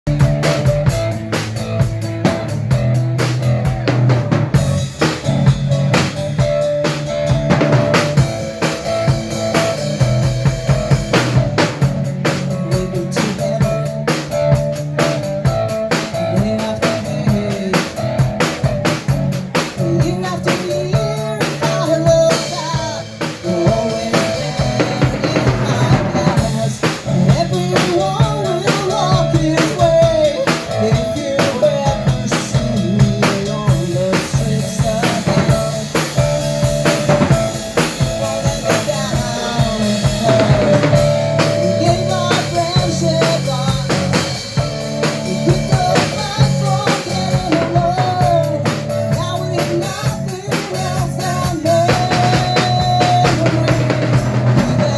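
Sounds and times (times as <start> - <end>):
drum kit steady beat: 0.0 - 54.9
rock band playing live: 0.0 - 54.9.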